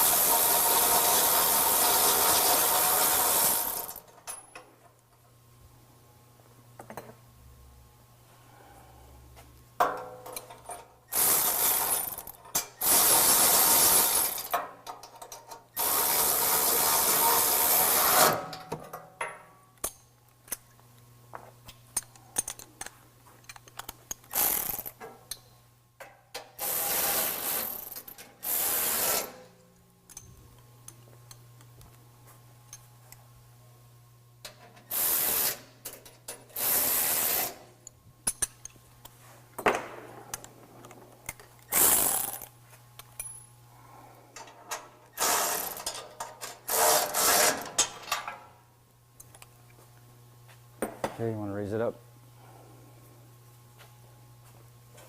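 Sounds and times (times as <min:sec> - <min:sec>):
power ratchet running: 0:00.0 - 0:04.0, 0:11.1 - 0:14.5, 0:15.8 - 0:18.4, 0:24.3 - 0:24.9, 0:26.6 - 0:29.3, 0:45.2 - 0:46.0, 0:46.7 - 0:47.6.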